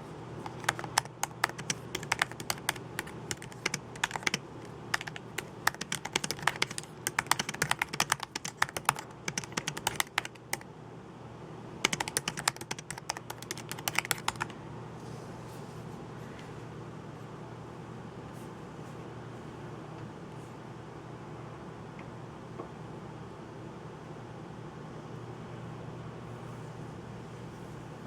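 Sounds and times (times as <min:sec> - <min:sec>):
computer keyboard typing: 0:00.4 - 0:10.7, 0:11.8 - 0:14.6.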